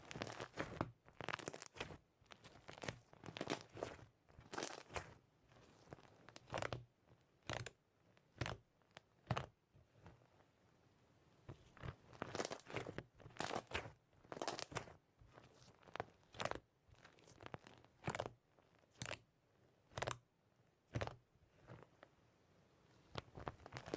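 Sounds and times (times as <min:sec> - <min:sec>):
crisp crunches: 0:00.0 - 0:06.7, 0:11.8 - 0:19.2, 0:23.1 - 0:23.9.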